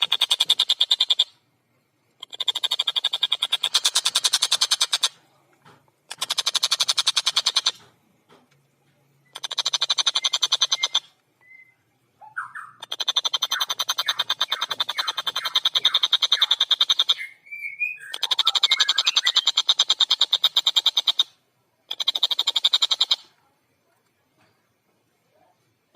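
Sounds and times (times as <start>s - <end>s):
kingfisher harsh rattling calls: 2.2s - 5.2s, 6.1s - 7.8s, 9.4s - 11.0s, 12.6s - 17.3s, 21.9s - 23.2s.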